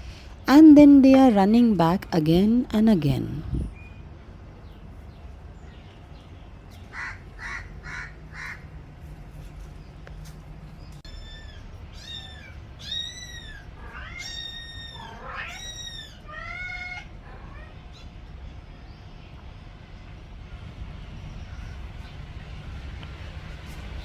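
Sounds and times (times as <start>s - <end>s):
kittens mewing: 11.1s - 18.2s.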